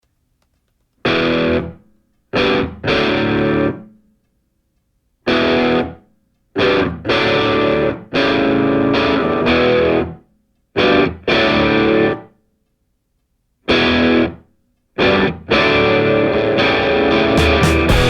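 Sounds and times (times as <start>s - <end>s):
distorted electric guitar chords: 15.0s - 18.0s.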